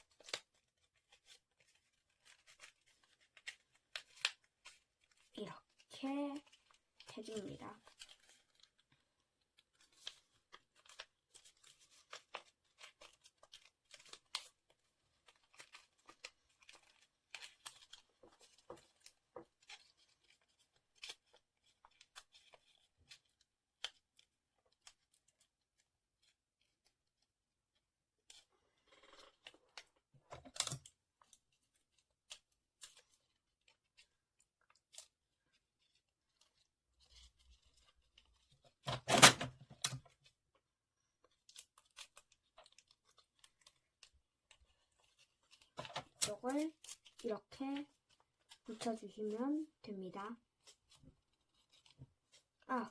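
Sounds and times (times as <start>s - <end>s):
paper rustling: 0.0s - 27.2s, 28.3s - 40.4s, 41.0s - 49.7s, 50.4s - 52.9s
scissors cutting paper: 45.0s - 49.4s.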